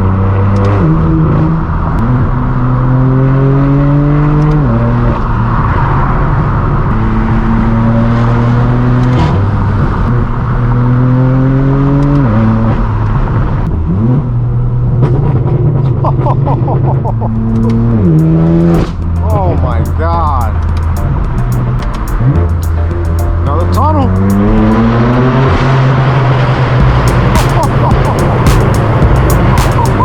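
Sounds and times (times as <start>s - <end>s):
car engine accelerating hard: 0.0s - 30.0s
exhaust cracks: 12.1s - 30.0s.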